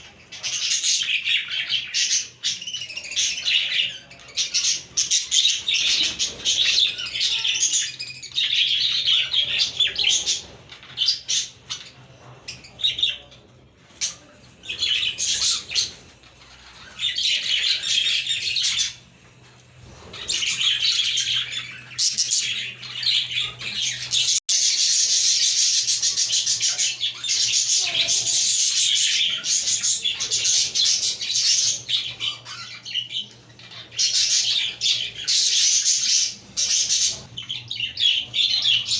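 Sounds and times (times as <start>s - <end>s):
budgies chirping and warbling: 0.0s - 38.9s.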